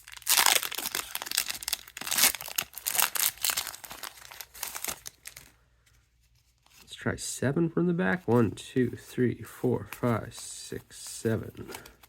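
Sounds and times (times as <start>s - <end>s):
plastic wrapper tearing and crinkling: 0.0s - 5.5s.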